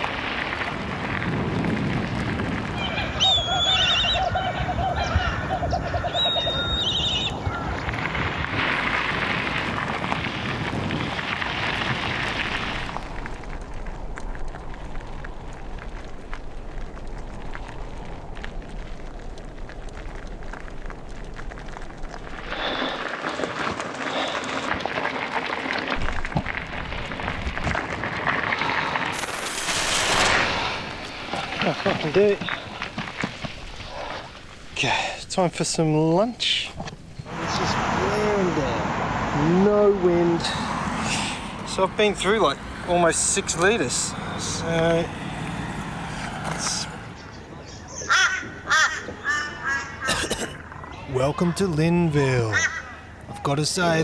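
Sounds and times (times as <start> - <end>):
wind buffeting microphone: 0.0 - 23.0, 30.6 - 47.6.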